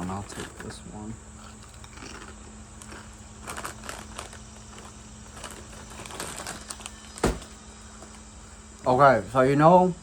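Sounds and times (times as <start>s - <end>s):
crunching snack chips: 0.0s - 7.2s.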